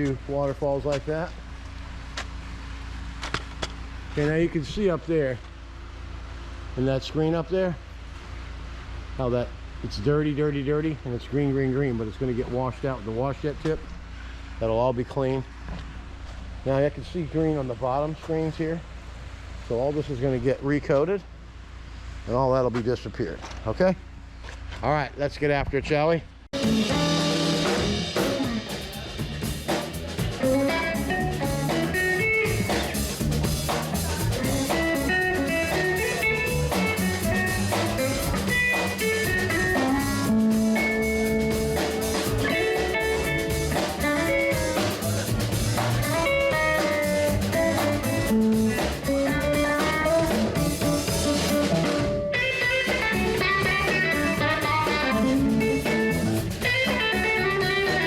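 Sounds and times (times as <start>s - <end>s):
blues electric guitar: 26.6s - 58.0s
drum kit: 26.6s - 58.0s.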